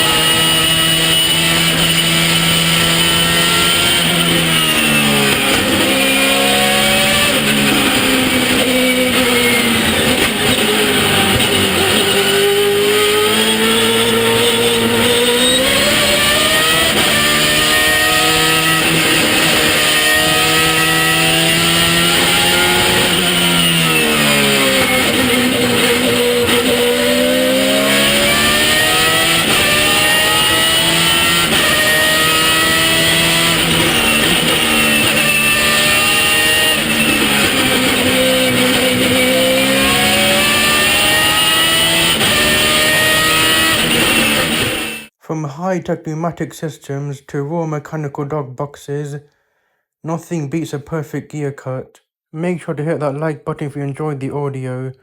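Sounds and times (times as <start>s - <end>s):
gear shifts: 0.0s - 45.0s
race car engine revving: 0.0s - 45.1s.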